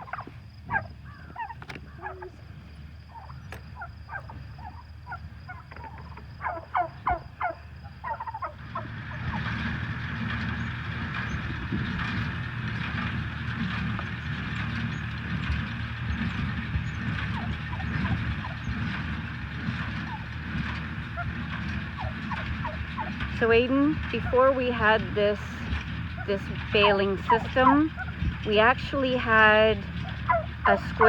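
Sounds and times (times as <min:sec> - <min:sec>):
fowl calling: 0:00.0 - 0:09.6, 0:16.1 - 0:19.0, 0:21.0 - 0:23.3, 0:24.1 - 0:31.0
machine rumbling with rattling hiss: 0:00.0 - 0:31.0.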